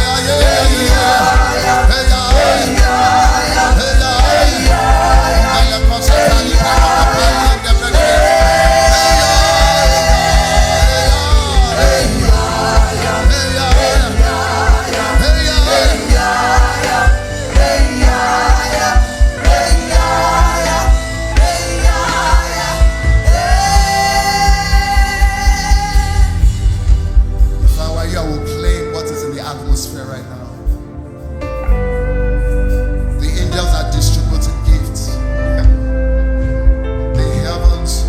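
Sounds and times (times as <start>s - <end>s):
singers with band: 0.0s - 26.8s
driving bass drum beat: 0.0s - 28.2s.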